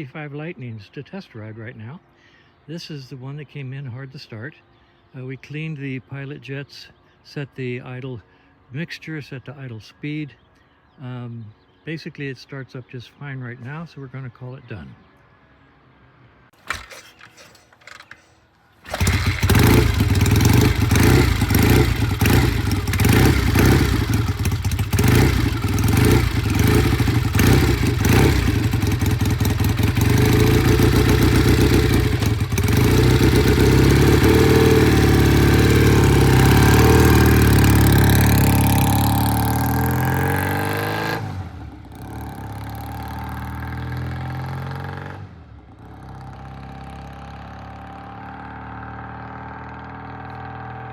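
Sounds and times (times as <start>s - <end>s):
motorcycle engine running: 16.6s - 44.8s.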